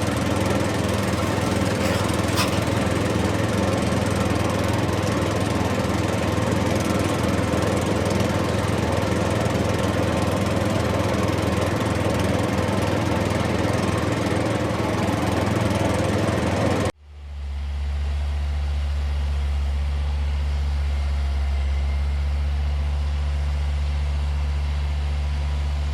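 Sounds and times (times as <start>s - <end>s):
rough buzzing engine: 0.0s - 3.7s.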